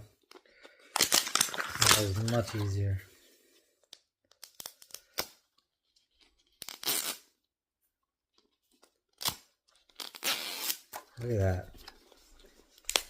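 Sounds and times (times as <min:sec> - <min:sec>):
packaging tearing: 0:00.9 - 0:02.8, 0:06.6 - 0:07.2, 0:09.2 - 0:11.0, 0:12.8 - 0:13.0
plastic packaging crackling: 0:00.9 - 0:03.0.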